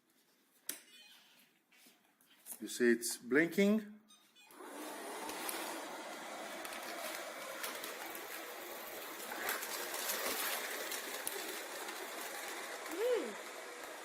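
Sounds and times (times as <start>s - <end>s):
robot vacuum cleaner hiss: 4.6s - 14.0s.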